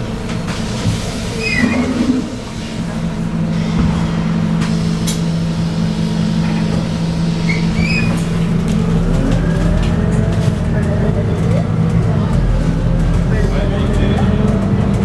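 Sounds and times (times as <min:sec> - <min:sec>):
bus engine running: 0:00.0 - 0:15.0.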